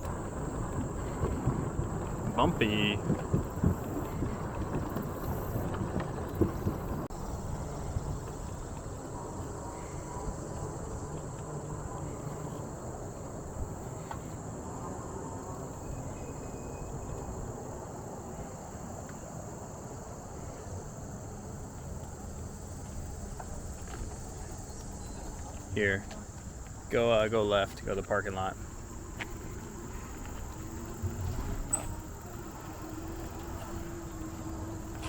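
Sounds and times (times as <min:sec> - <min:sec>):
bicycle riding on a trail: 0:00.0 - 0:35.0
high-pitched insect chorus: 0:00.0 - 0:35.0.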